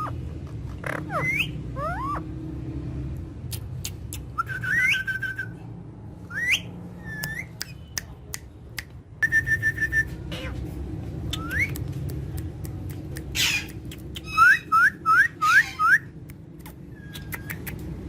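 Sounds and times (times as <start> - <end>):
parrots whistling: 0.8 - 2.3, 4.2 - 5.6, 6.3 - 7.8, 11.3 - 11.8, 13.3 - 16.2, 16.9 - 17.9
sharp clicks: 11.3 - 14.3, 16.2 - 18.0.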